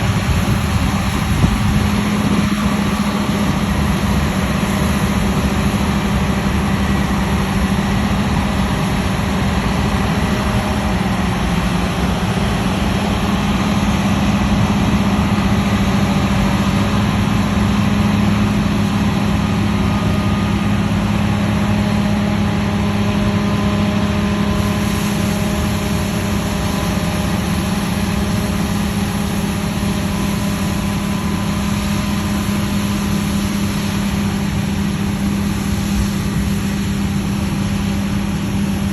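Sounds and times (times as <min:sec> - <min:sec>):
combine harvester droning: 0:00.0 - 0:38.9.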